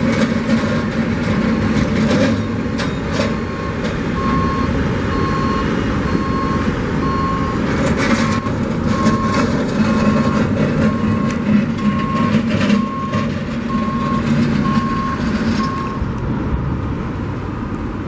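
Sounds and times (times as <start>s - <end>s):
diesel engine rumble: 0.0s - 18.0s
reversing alarm beeping: 2.2s - 16.1s.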